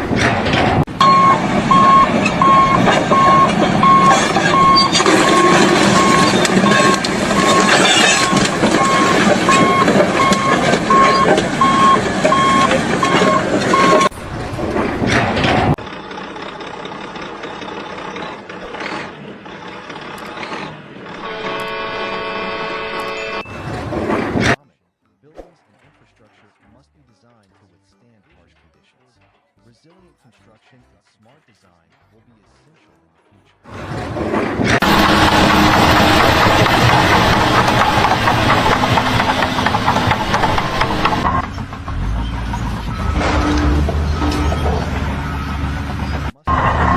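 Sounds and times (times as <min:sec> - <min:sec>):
clattering knocks and rattles: 0:00.0 - 0:21.2, 0:23.4 - 0:24.6, 0:33.7 - 0:46.9
engine running: 0:00.0 - 0:24.6, 0:33.7 - 0:46.9.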